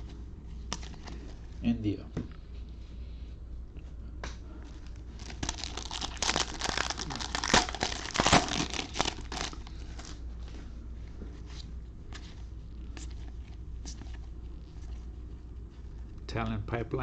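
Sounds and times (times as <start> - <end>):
foil wrapper tearing and crinkling: 5.0 - 10.2.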